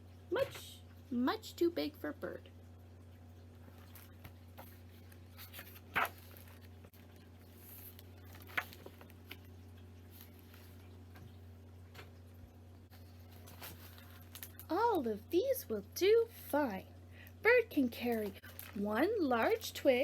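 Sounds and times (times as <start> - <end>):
low electrical hum: 0.0 - 20.0
paper book rustling and tapping: 3.8 - 9.5.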